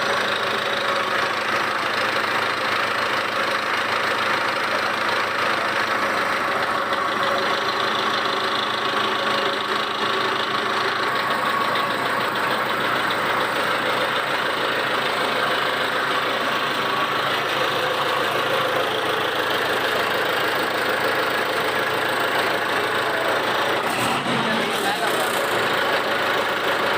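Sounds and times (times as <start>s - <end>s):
tractor diesel engine idling: 0.0s - 26.9s.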